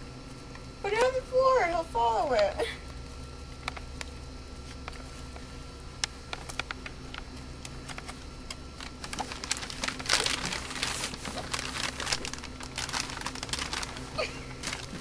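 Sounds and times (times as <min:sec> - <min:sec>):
plastic bag crinkling: 0:08.6 - 0:15.0.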